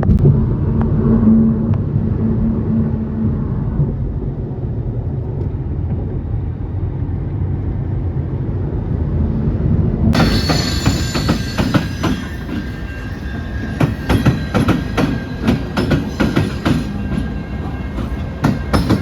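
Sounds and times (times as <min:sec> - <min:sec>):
metallic squealing: 0:10.2 - 0:19.0.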